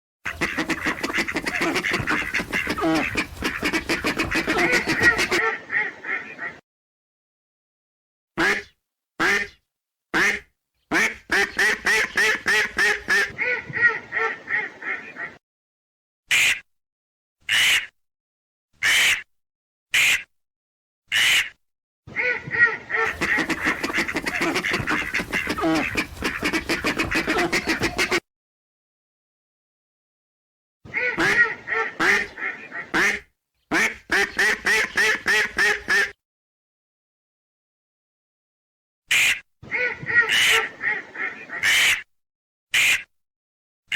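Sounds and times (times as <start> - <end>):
duck quacking: 0.3 - 6.6, 8.4 - 9.6, 10.2 - 15.4, 16.3 - 16.6, 17.5 - 17.9, 18.8 - 19.2, 21.1 - 28.2, 30.9 - 36.2, 39.1 - 42.0, 42.8 - 43.1.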